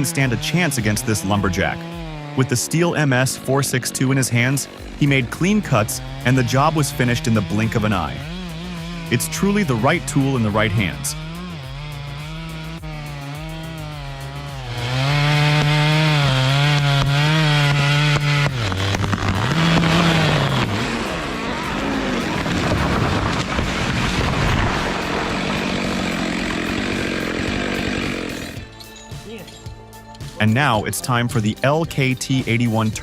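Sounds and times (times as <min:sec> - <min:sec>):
chainsaw running at high revs: 0:00.0 - 0:28.8
chainsaw cutting wood: 0:00.0 - 0:30.4.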